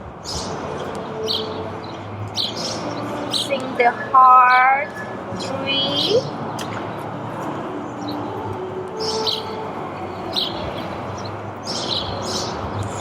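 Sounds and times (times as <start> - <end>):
small birds chirping: 0.2 - 7.0, 8.0 - 9.6, 10.2 - 13.0.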